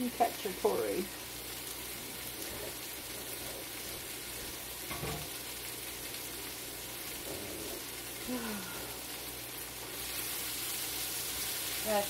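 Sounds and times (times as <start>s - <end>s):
food sizzling in a skillet: 0.0s - 12.0s.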